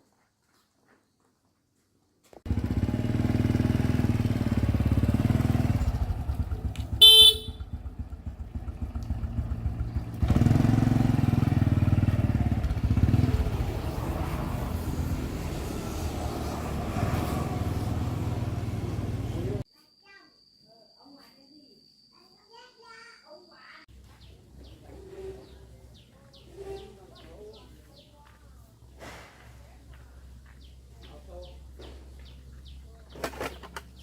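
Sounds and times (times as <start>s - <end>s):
motorbike engine running: 2.5s - 19.6s
horn honking: 6.8s - 8.0s.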